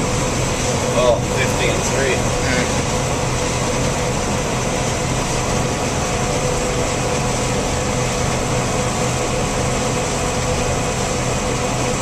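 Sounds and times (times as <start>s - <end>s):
combine harvester drone: 0.0s - 12.0s.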